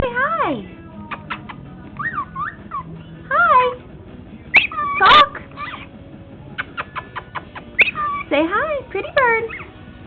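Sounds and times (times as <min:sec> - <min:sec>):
bird harsh squawk: 0:01.1 - 0:02.9, 0:04.5 - 0:06.0, 0:06.6 - 0:08.4, 0:09.4 - 0:09.8
bird whistle-like chirps: 0:06.6 - 0:08.3.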